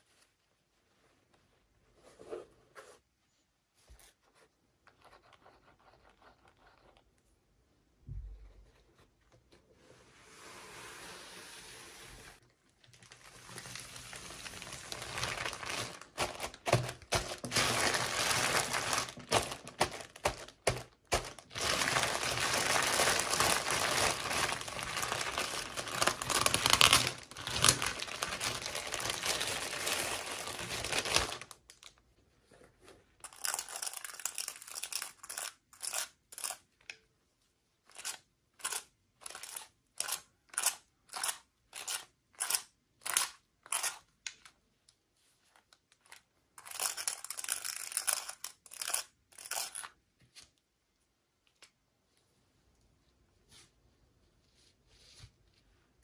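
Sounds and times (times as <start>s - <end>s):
packaging crinkling and tearing: 12.8s - 32.0s.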